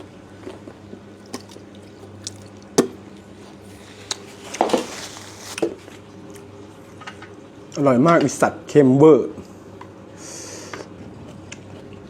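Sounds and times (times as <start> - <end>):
person chewing food: 0.0 - 6.6, 10.6 - 12.0.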